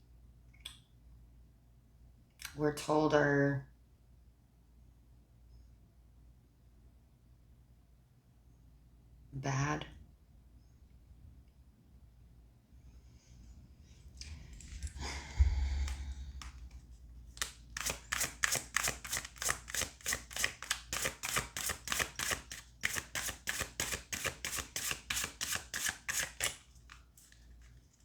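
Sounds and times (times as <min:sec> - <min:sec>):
cards being shuffled: 0:15.8 - 0:28.0.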